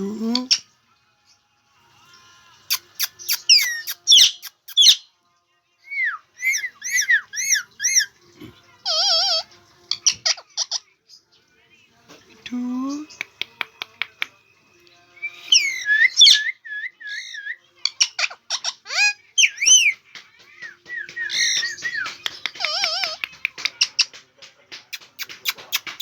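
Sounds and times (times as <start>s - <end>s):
parrot whistling and chattering: 2.7s - 5.0s, 5.9s - 8.1s, 8.8s - 10.8s, 15.2s - 24.1s, 24.9s - 26.0s.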